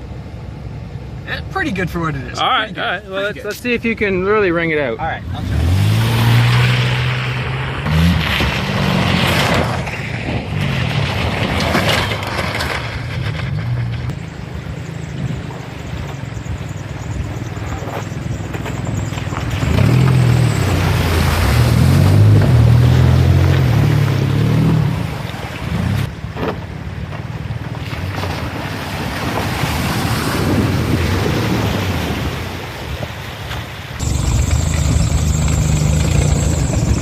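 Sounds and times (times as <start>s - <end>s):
off-road vehicle engine revving: 5.0s - 14.2s, 17.2s - 26.1s, 34.0s - 37.0s.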